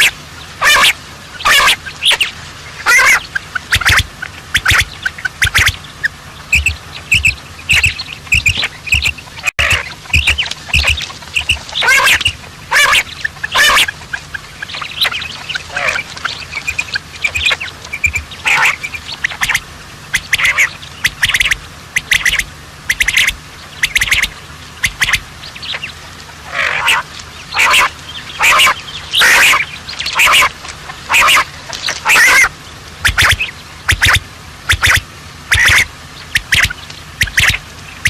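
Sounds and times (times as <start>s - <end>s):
birds squawking: 0.0s - 38.0s.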